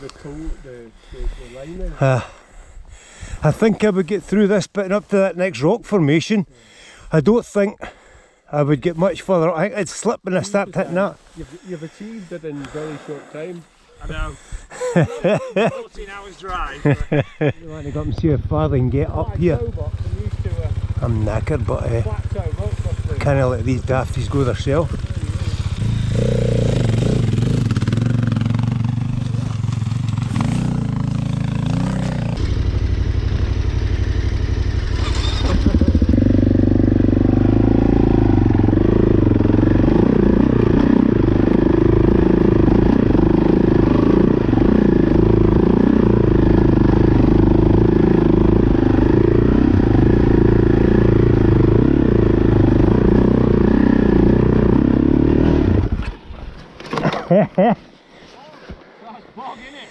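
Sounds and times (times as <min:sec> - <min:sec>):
motorcycle engine running: 0:17.8 - 0:56.1.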